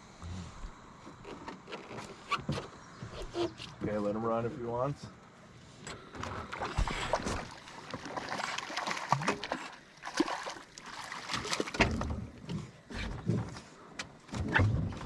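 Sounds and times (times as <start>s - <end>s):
water splashing and sloshing: 5.3s - 15.0s.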